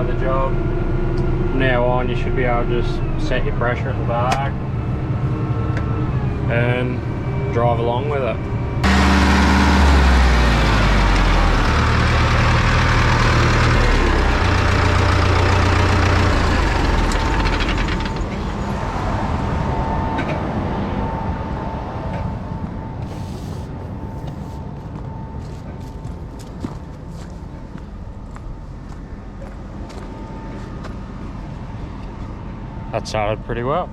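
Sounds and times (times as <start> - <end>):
thin steady whine: 0.0 - 16.1, 16.8 - 33.9
tractor engine under load: 8.8 - 18.8.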